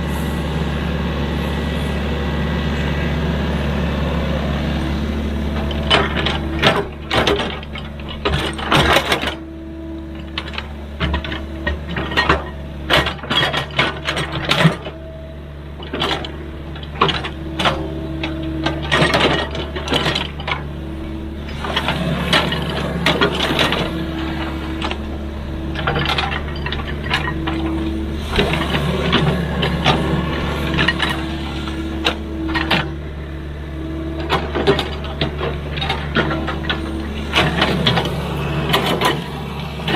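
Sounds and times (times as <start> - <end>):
excavator engine running: 0.0 - 39.9
sharp metal clanks and knocks: 21.5 - 33.0.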